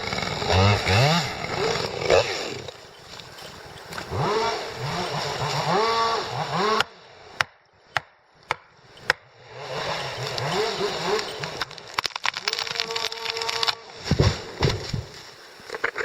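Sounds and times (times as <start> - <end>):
chainsaw engine revving: 0.0 - 7.2, 8.9 - 13.9.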